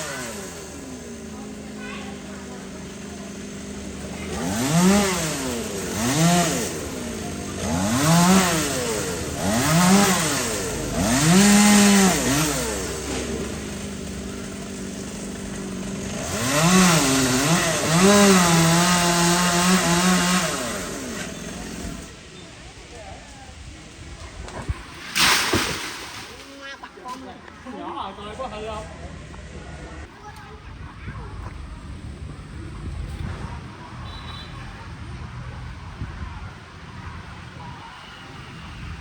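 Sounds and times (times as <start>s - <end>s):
chainsaw engine revving: 0.0s - 22.2s, 24.7s - 26.8s.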